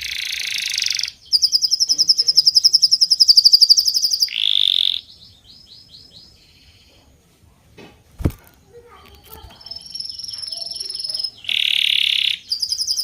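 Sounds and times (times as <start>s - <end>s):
bird chirps: 0.0s - 7.1s, 9.2s - 13.0s.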